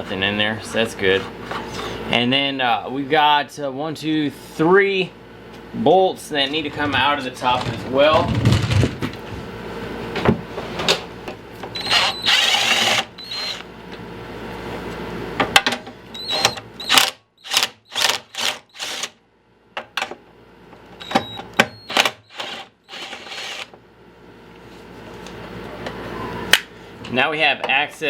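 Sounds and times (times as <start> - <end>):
power drill running: 11.6 - 13.7, 16.1 - 19.2, 21.0 - 23.7.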